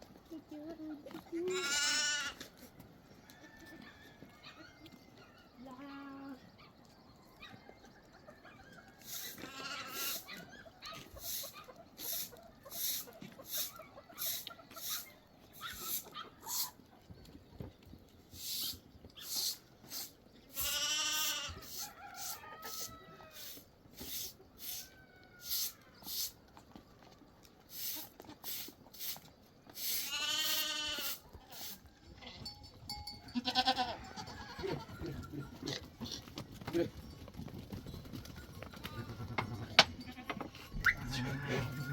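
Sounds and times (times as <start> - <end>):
goat bleating: 1.3 - 2.5, 9.2 - 10.3, 20.5 - 21.7, 29.9 - 32.5, 33.3 - 36.3, 38.8 - 41.9.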